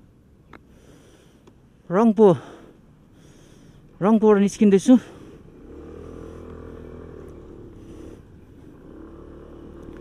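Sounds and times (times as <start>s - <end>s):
motorcycle engine running: 4.9s - 10.0s.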